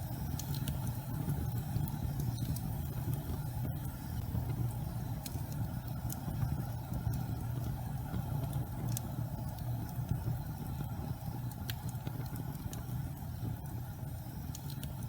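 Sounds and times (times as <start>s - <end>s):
faint crackles and ticks: 0.0s - 15.0s
gas fireplace flames rumbling: 0.0s - 15.0s.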